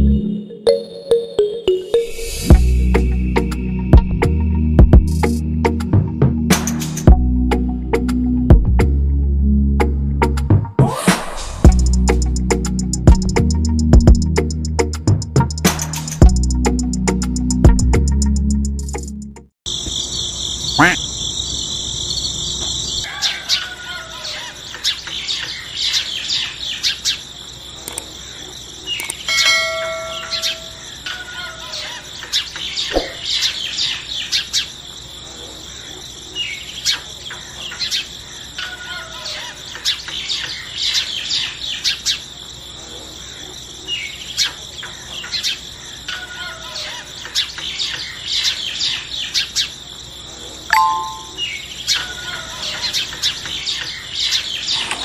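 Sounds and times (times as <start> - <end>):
birds chirping: 19.7 - 55.0
high insect hum: 19.7 - 55.0.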